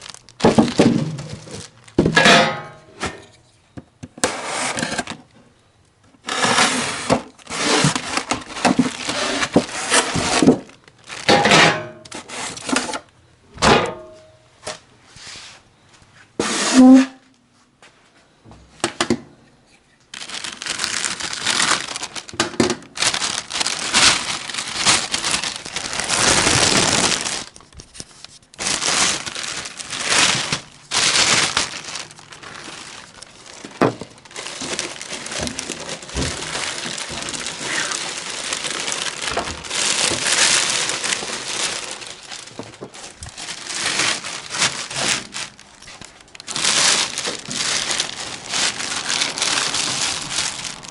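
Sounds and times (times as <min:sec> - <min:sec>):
packing material crinkling: 0:00.0 - 0:02.1, 0:06.2 - 0:13.1, 0:20.1 - 0:50.9.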